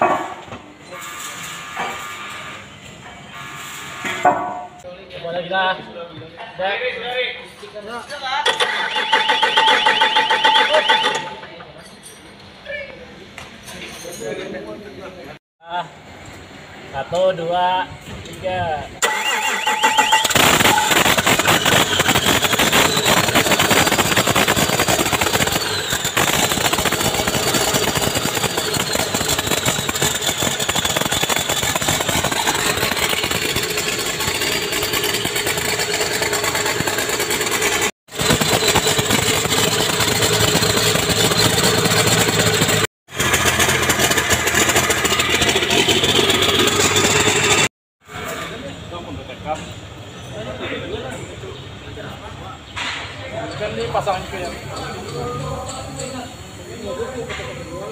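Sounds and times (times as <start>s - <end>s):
large engine running with whine: 19.1s - 47.7s.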